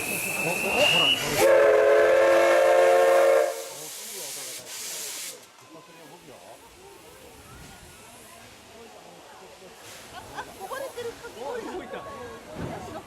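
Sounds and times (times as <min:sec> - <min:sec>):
steam hissing: 0:00.0 - 0:05.5
steam locomotive whistle chord: 0:01.4 - 0:03.6.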